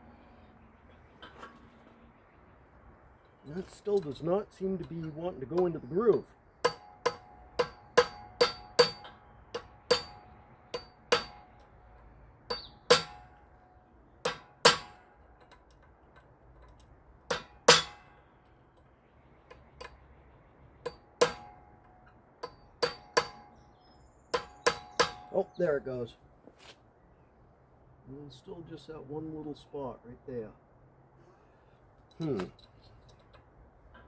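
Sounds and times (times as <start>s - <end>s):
hammer tapping metal part: 3.9s - 13.5s, 14.2s - 18.3s, 20.8s - 23.6s, 24.4s - 25.3s.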